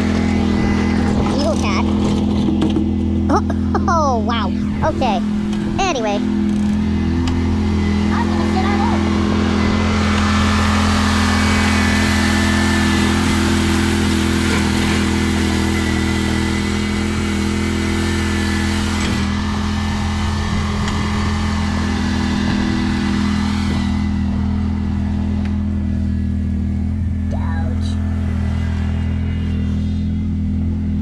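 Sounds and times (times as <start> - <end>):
mower engine running: 0.0 - 31.0
rushing noise: 18.5 - 25.8.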